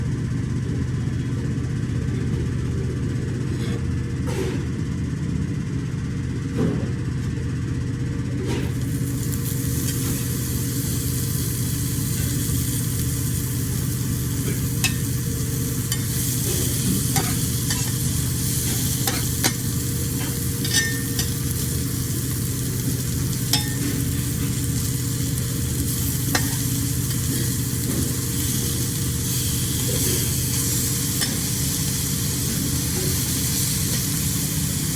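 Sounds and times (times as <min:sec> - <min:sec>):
seafood sizzling on a grill: 0:08.7 - 0:34.9.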